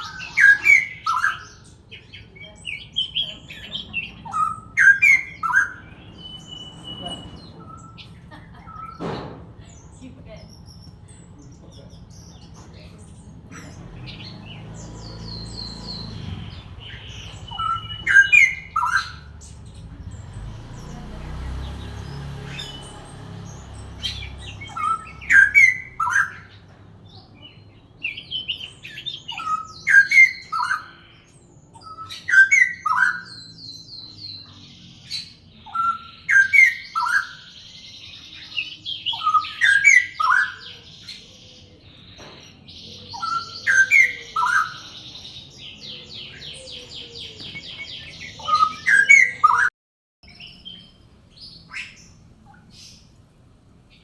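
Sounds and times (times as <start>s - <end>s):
high bird trill: 0.0s - 41.2s
songbirds singing: 0.0s - 54.0s.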